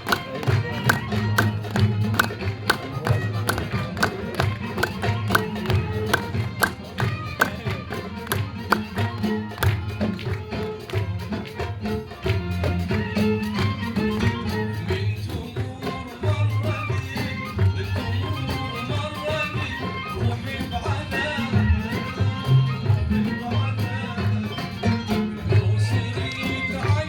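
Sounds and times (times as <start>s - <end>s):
drum strokes: 0.0s - 10.7s
live band playing traditional music: 0.0s - 27.0s.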